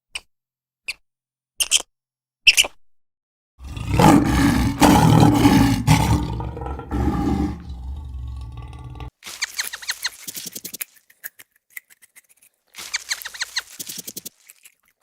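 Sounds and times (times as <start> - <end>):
large animal roaring: 3.6 - 9.1.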